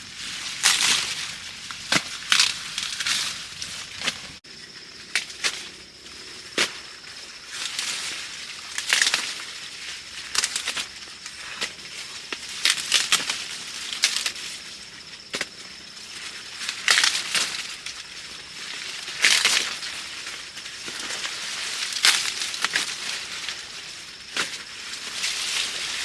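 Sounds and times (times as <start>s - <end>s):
dry leaves crackling and rustling: 0.0s - 26.0s.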